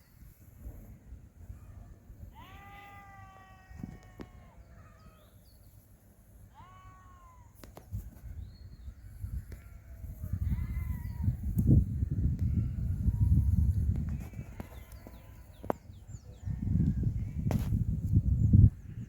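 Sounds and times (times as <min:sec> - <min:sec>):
animal crying: 0:02.3 - 0:05.2, 0:06.5 - 0:07.6.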